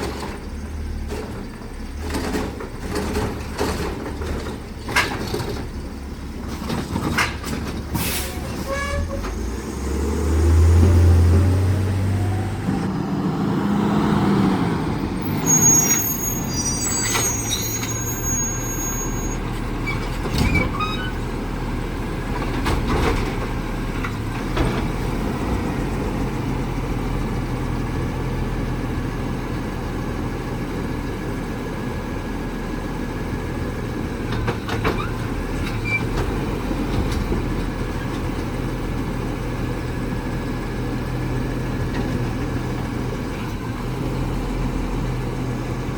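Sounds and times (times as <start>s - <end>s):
garbage truck engine hum: 0.0s - 45.9s
high squeal: 15.0s - 21.2s.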